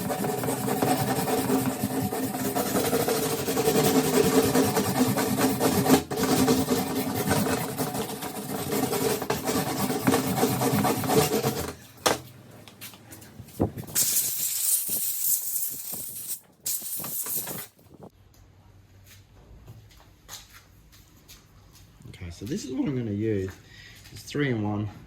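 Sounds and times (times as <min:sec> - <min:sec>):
hedge trimmer engine running: 0:00.0 - 0:10.4
loud aerosol-like hiss: 0:14.0 - 0:17.8.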